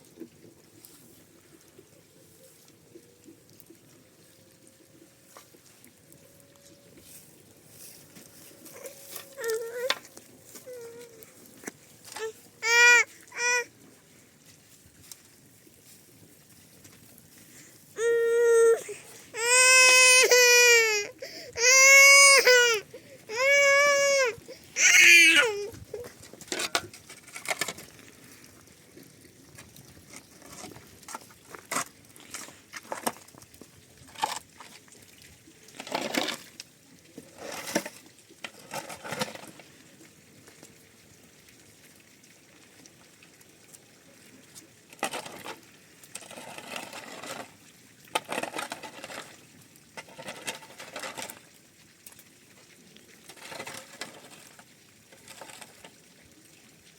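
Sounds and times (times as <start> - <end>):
rustling: 6.6 - 28.4
clicks and scraping of handling: 7.9 - 12.4, 25.7 - 28.2, 29.6 - 33.4, 35.7 - 39.6, 44.9 - 47.5, 48.2 - 49.4, 50.0 - 51.4, 53.3 - 56.0
baby crying: 8.8 - 10.0, 12.2 - 13.7, 18.0 - 25.8.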